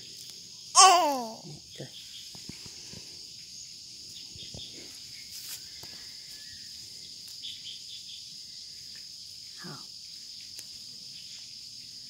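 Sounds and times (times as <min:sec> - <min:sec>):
insect chorus trilling: 0:00.0 - 0:12.0.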